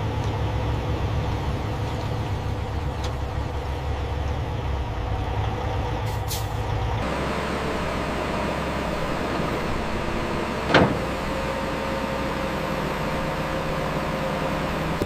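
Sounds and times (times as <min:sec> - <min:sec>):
logging machine engine running: 0:07.0 - 0:15.0.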